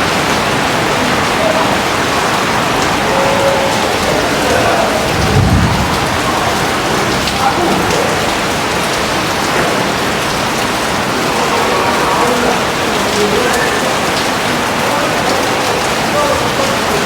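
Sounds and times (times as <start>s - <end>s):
heavy rain: 0.0s - 17.0s
low rumble: 3.7s - 9.0s.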